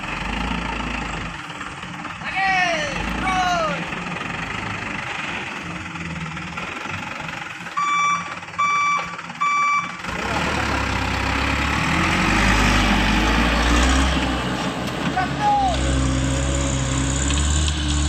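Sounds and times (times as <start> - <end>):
heavier engine rumble: 0.0 - 18.0
heavy vehicle engine running: 0.0 - 18.0
reversing alarm beeps: 7.8 - 10.0.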